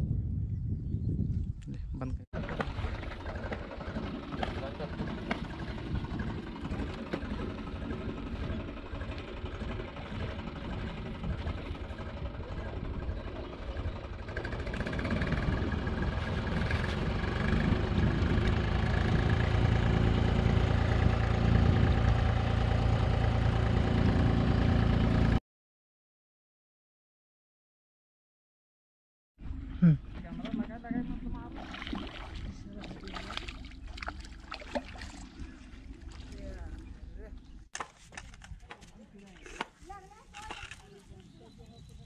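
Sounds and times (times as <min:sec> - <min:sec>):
engine running: 0:02.4 - 0:25.4, 0:29.4 - 0:38.4.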